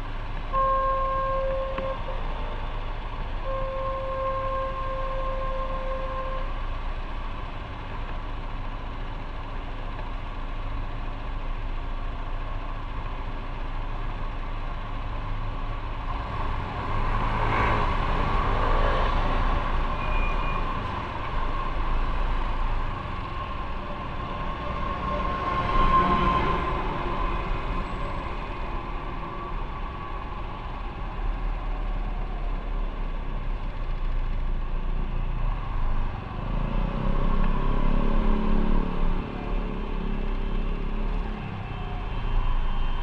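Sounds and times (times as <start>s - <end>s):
city traffic noise: 0.0s - 43.0s
motorcycle engine and road rumble: 0.0s - 43.0s.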